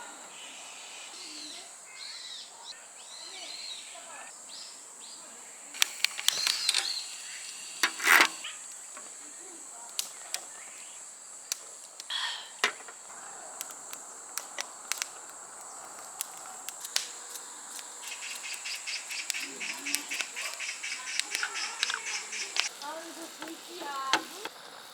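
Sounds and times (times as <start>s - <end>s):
high-pitched insect chirring: 5.8s - 13.1s, 13.7s - 24.4s
sharp clicks and knocks: 7.8s - 8.4s.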